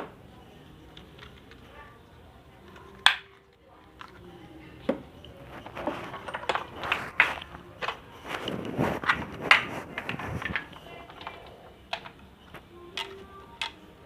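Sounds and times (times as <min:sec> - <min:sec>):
hard objects clattering: 0:02.6 - 0:13.8.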